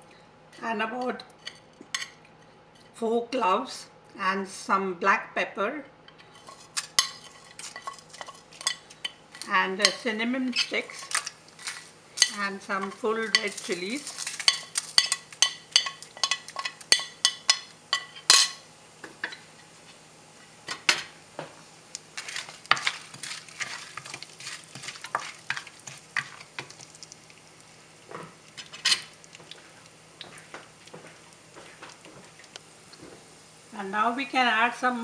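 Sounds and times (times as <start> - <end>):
spoon stirring and scraping pan: 6.1 - 19.5, 22.0 - 33.4
spices frying in hot oil: 6.2 - 35.0.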